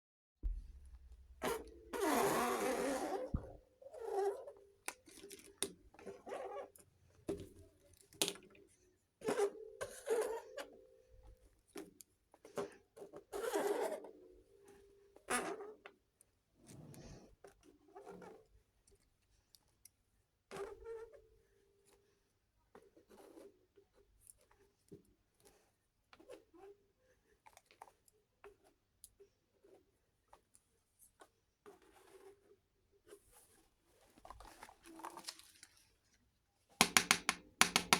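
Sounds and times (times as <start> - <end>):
sharp plastic clicks: 36.8 - 37.9.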